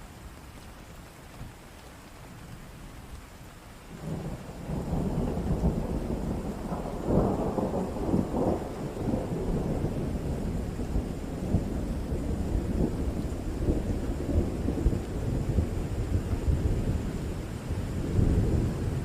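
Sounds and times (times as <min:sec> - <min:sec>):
steady rain: 0:00.0 - 0:19.0
rolling thunder: 0:04.0 - 0:19.0.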